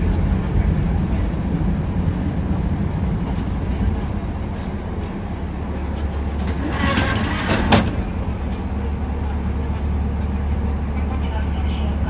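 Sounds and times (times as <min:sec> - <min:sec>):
tram wheels rumbling on rails: 0:00.0 - 0:12.0
rattle: 0:06.4 - 0:08.6.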